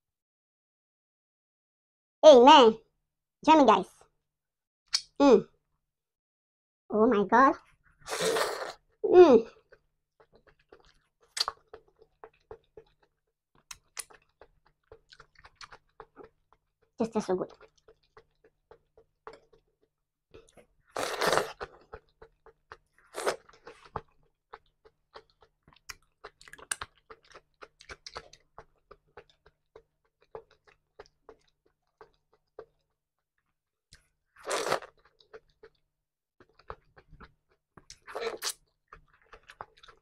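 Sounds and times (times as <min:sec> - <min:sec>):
chewing crunchy vegetables: 0:09.5 - 0:33.0, 0:33.9 - 0:40.0.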